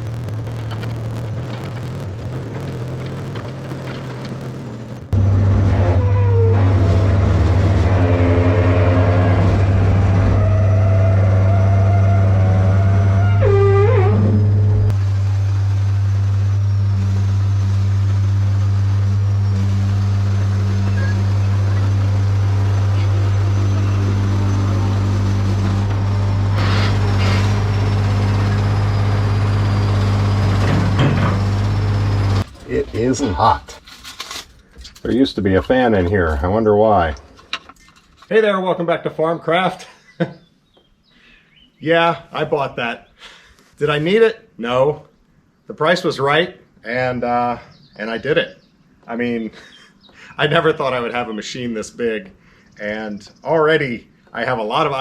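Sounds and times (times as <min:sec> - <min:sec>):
excavator diesel engine humming: 0:00.0 - 0:33.1
wavering horn-like squeal: 0:05.7 - 0:14.9, 0:15.7 - 0:30.7.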